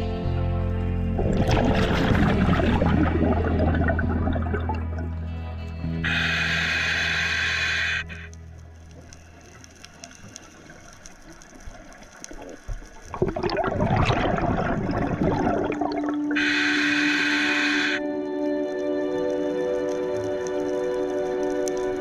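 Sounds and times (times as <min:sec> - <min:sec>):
background music: 0:00.0 - 0:09.3, 0:14.6 - 0:22.0
faint underwater background: 0:00.0 - 0:22.0
scuba regulator bubbles rushing: 0:01.1 - 0:05.2, 0:11.7 - 0:17.3.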